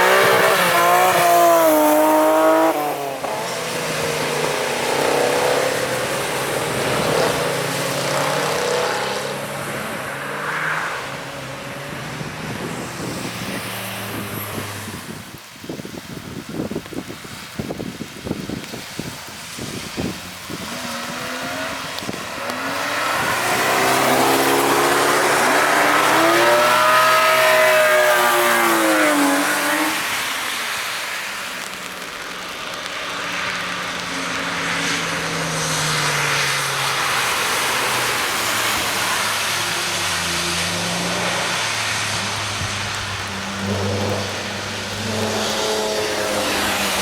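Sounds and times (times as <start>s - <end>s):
tyres hissing on wet tarmac: 0.0s - 47.0s
wind buffeting microphone: 11.7s - 27.0s
race car engine passing: 20.6s - 31.7s, 33.7s - 47.0s.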